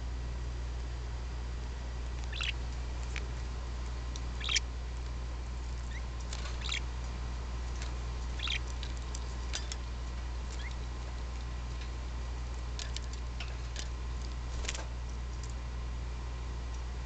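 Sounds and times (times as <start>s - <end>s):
steady low hum: 0.0s - 17.0s
parakeets chirping: 2.1s - 3.1s, 4.2s - 4.8s, 5.5s - 11.2s.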